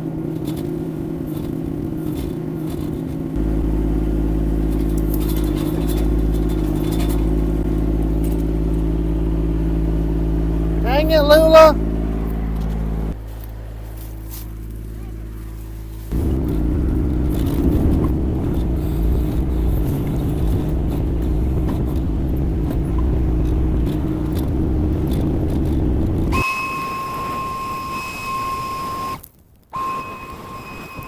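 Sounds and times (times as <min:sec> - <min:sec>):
diesel engine rumbling: 0:00.0 - 0:29.2
high electronic buzzer tone: 0:26.3 - 0:29.2, 0:29.8 - 0:31.0.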